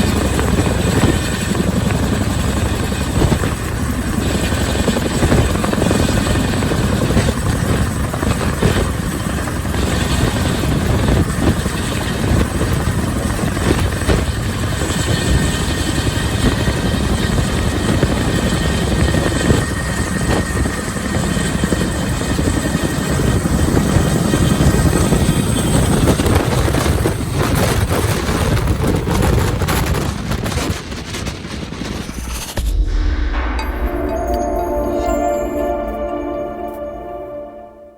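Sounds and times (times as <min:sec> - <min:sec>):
helicopter rotor chop: 0:00.0 - 0:10.1.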